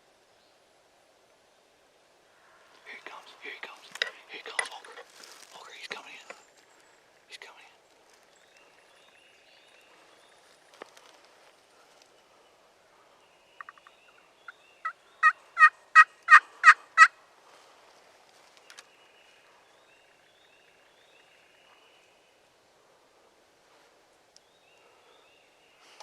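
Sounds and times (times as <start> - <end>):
turkey yelping: 14.8 - 17.2.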